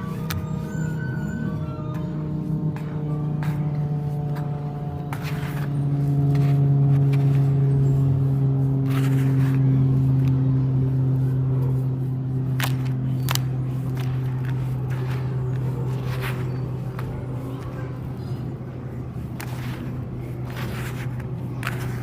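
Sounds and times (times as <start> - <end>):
steady low hum: 0.0 - 22.0
sharp cracks: 12.5 - 18.6.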